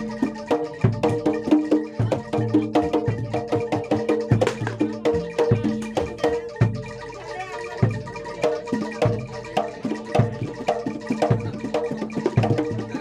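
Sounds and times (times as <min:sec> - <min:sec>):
mallet-struck metal instruments: 0:00.0 - 0:13.0.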